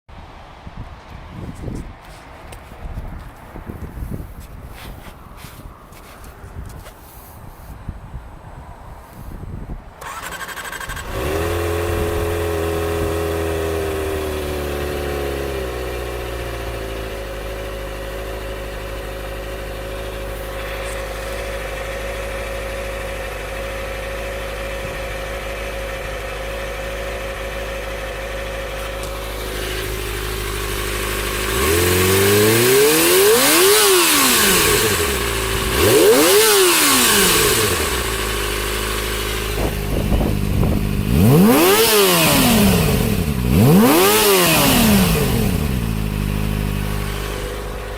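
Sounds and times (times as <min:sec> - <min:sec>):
motorcycle engine idling: 0:10.0 - 0:47.9
motorcycle engine revving: 0:10.0 - 0:47.9.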